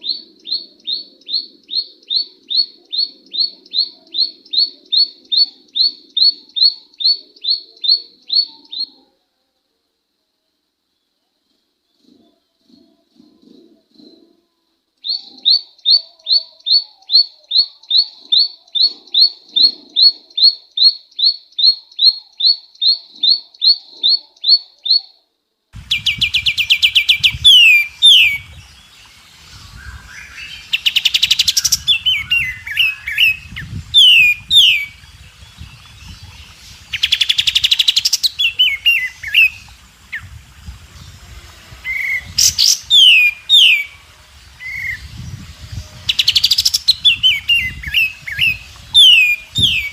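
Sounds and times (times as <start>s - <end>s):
bird song with buzzy trills: 11.0s - 25.2s, 25.8s - 49.9s
high sharp bird chirps: 25.8s - 40.4s, 41.8s - 44.0s, 44.6s - 49.9s.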